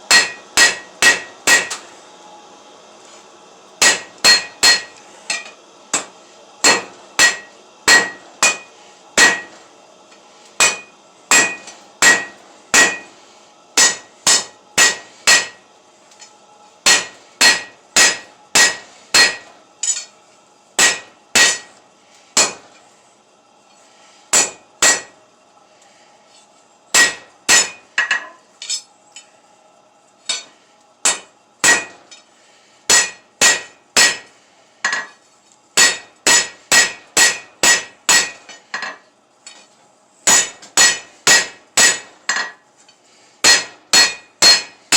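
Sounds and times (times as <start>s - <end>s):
hammer striking hot metal on anvil: 0.0s - 1.8s, 3.8s - 9.6s, 10.6s - 13.1s, 13.8s - 15.6s, 16.8s - 20.1s, 20.8s - 21.8s, 22.4s - 22.8s, 24.3s - 25.2s, 26.9s - 28.9s, 30.3s - 32.3s, 32.9s - 35.2s, 35.8s - 39.6s, 40.2s - 42.6s, 43.4s - 44.9s.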